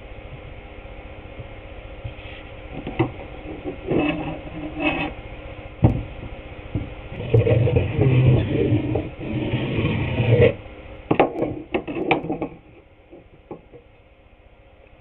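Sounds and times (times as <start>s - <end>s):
rubbing of wood: 2.1s - 5.2s, 5.8s - 10.6s
sharp wooden knocks: 5.8s - 7.0s
wooden boards scuffling: 5.8s - 13.8s.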